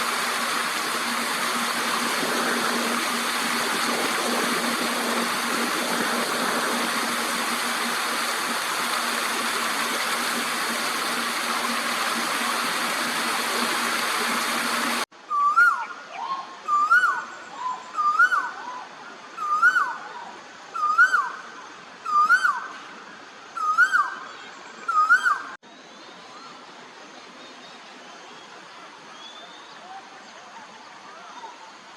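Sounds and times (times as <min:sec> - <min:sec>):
low hum: 0:00.0 - 0:15.0
steady rushing noise: 0:00.0 - 0:15.1
bird whistled call: 0:15.3 - 0:18.8, 0:19.4 - 0:20.0, 0:20.8 - 0:21.4, 0:22.0 - 0:22.7, 0:23.6 - 0:24.3, 0:24.9 - 0:25.5.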